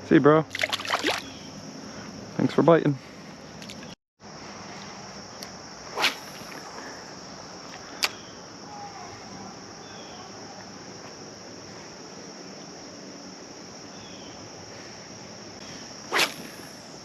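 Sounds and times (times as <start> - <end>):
insects trilling: 0.0 - 17.0
brief swish: 5.9 - 6.6, 16.1 - 16.8.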